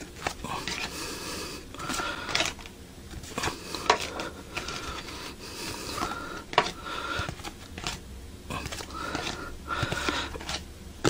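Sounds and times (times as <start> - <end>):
cards sliding against each other: 0.0 - 10.7.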